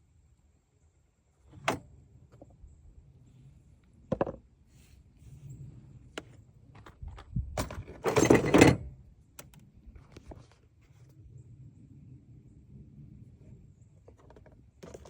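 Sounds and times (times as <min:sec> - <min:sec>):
objects knocking and clicking: 0:04.1 - 0:04.4
rattling clatter: 0:07.6 - 0:08.9.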